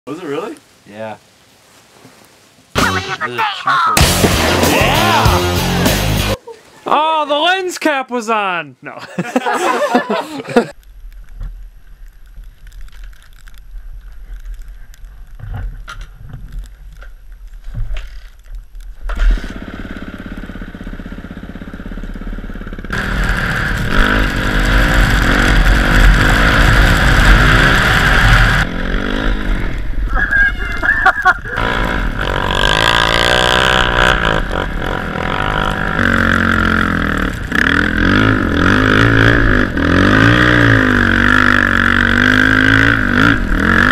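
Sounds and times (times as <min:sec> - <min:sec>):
dirt bike engine revving: 0:04.0 - 0:06.4, 0:19.1 - 0:30.1, 0:31.1 - 0:43.9.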